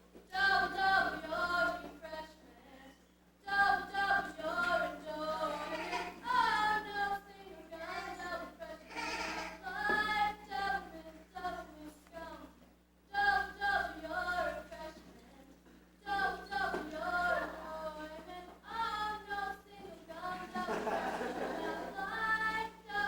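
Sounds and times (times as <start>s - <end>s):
voices singing: 0.3s - 23.0s.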